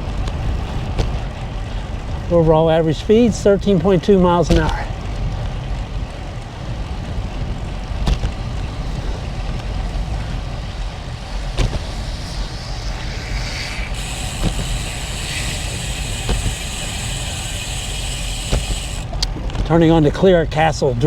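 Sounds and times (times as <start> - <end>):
wind rushing over microphone: 0.0 - 19.8
high hiss: 8.8 - 19.2
sharp clicks: 11.4 - 19.3.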